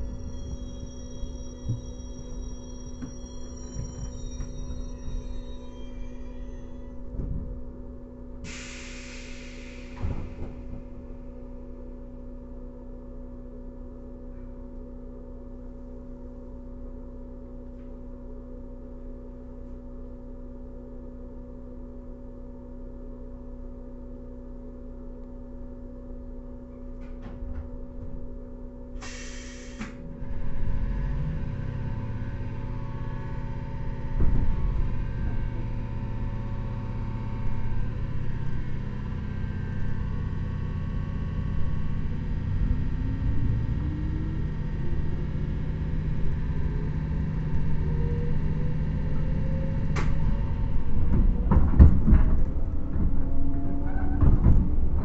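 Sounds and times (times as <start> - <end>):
traction motors rumbling: 0.0 - 55.0
train hum: 0.0 - 55.0
compressed air hiss: 8.5 - 10.4, 29.0 - 30.0.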